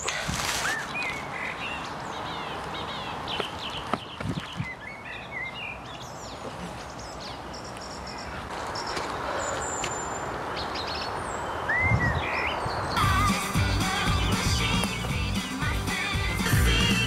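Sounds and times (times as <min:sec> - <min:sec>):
music: 0:13.0 - 0:17.0.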